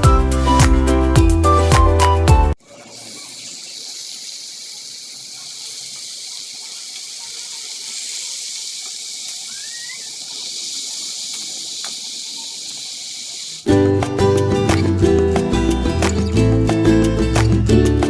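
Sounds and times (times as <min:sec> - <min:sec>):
high-pitched hiss: 0:03.4 - 0:13.7
faint rising chirp: 0:09.4 - 0:11.4.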